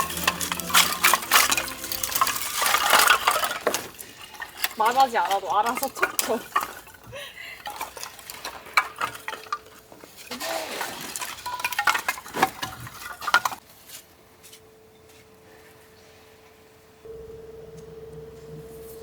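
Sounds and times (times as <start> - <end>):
hard objects knocking and clattering: 0.0 - 13.6
faint steady hum: 14.7 - 19.0.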